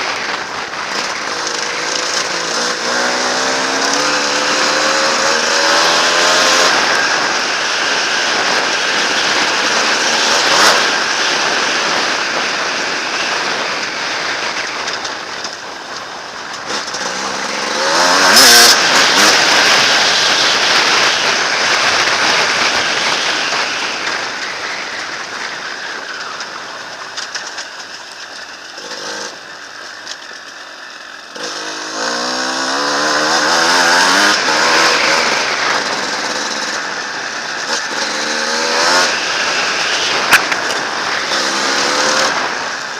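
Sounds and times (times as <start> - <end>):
dirt bike engine revving: 0.0 - 15.3, 16.5 - 24.6, 25.6 - 42.9.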